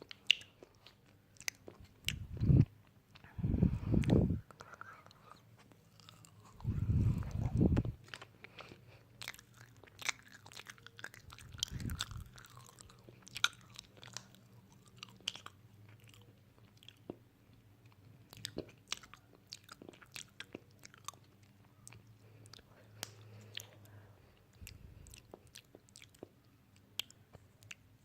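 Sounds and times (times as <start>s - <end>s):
wet mouth clicks: 0.0s - 5.4s, 6.3s - 8.0s
crisp chewing crunches: 3.9s - 17.2s, 24.6s - 27.8s.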